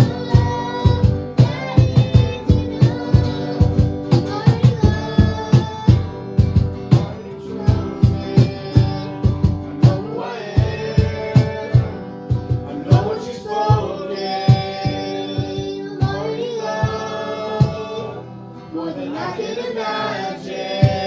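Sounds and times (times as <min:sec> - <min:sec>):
steady drum beat: 0:00.0 - 0:16.2, 0:16.8 - 0:18.0
voices singing held notes: 0:00.0 - 0:21.0
worship band playing: 0:00.0 - 0:21.0.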